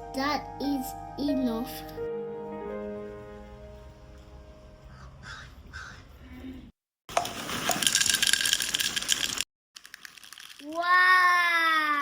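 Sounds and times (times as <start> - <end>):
birds cawing: 4.9 - 6.3.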